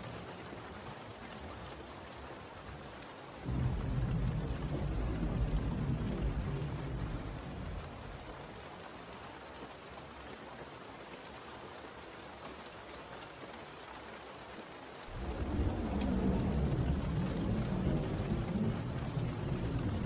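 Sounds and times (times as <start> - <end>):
rain falling: 0.0 - 20.0
low rumble: 15.1 - 20.0.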